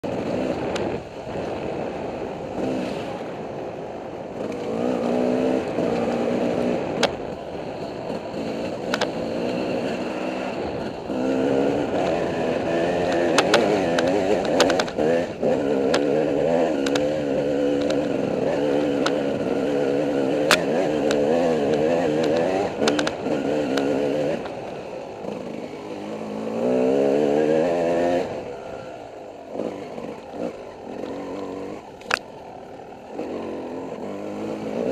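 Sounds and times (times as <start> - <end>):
dirt bike engine revving: 0.0 - 3.5, 4.2 - 34.9
sharp clicks: 13.0 - 15.0, 16.8 - 18.2, 20.3 - 24.6, 30.2 - 32.3.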